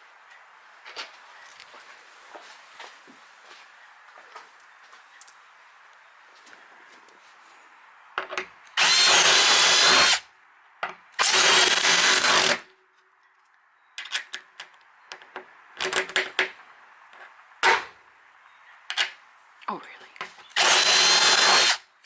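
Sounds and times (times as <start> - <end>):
power drill running: 8.8 - 10.2, 11.2 - 12.6, 20.6 - 21.8.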